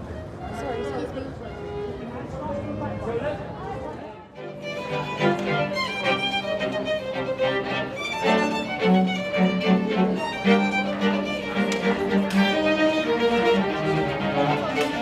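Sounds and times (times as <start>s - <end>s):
violin playing lively notes: 4.4s - 15.0s.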